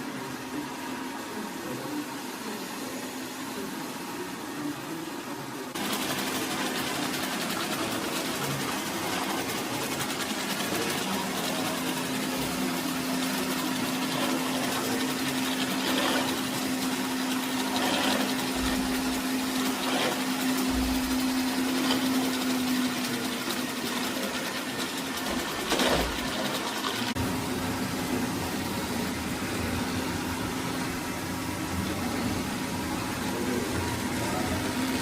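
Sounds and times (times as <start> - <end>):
robot vacuum motor humming: 5.8 - 27.2.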